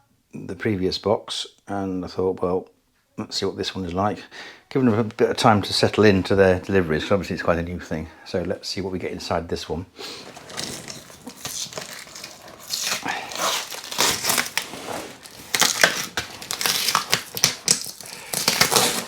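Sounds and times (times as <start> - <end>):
crackling and crinkling: 4.7 - 7.3, 8.3 - 19.0
packing tape tearing off cardboard: 10.0 - 19.0.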